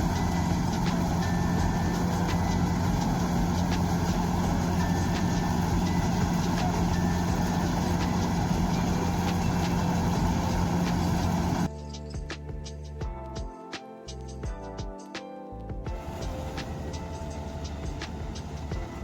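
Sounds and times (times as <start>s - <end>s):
diesel engine running: 0.0s - 11.7s, 15.9s - 19.0s.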